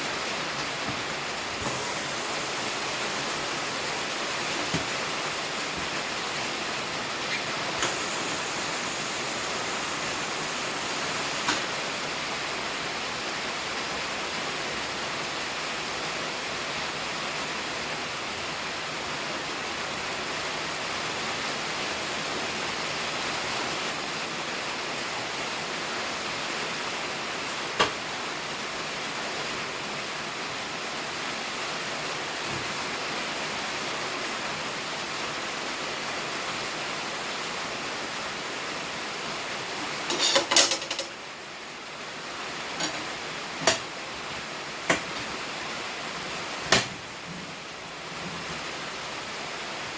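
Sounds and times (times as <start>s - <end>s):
air hissing: 1.6s - 6.1s, 7.3s - 12.0s.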